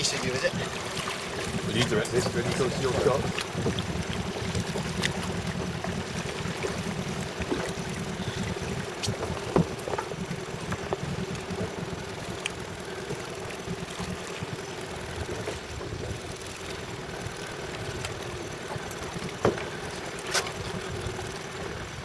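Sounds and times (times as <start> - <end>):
boat engine idling: 0.0 - 22.0.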